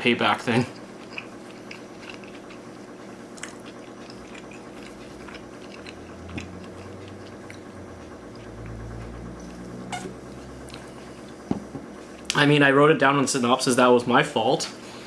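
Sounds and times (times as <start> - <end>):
wet chewing sounds: 0.7 - 12.4
low hum: 2.2 - 12.4.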